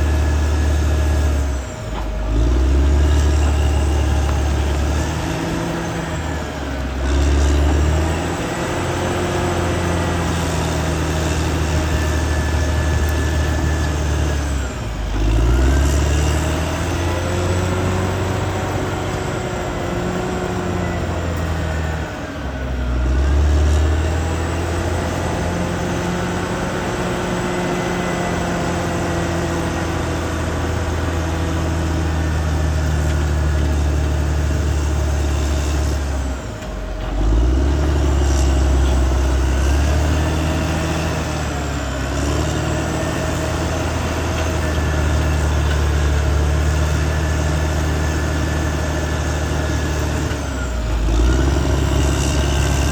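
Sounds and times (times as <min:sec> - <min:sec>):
bulldozer diesel engine running: 0:00.0 - 0:52.9.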